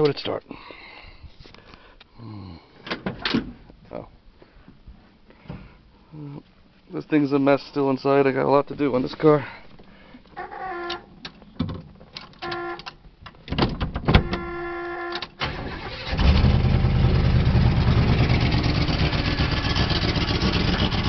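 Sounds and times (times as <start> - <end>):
car engine running: 16.2 - 21.0.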